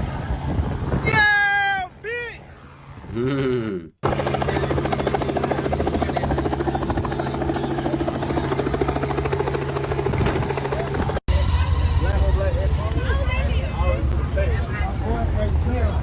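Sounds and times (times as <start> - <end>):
helicopter rotor beating: 4.0 - 14.3.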